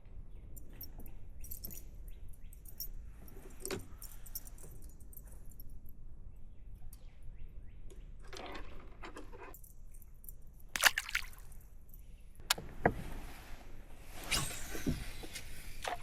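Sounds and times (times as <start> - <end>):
water splashing and dripping: 10.8 - 11.6.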